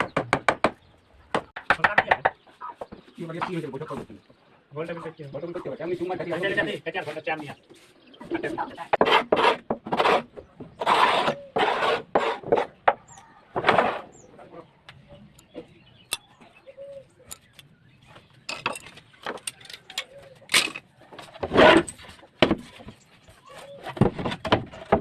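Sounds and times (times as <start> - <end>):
scraping strokes on wood: 6.2 - 13.0.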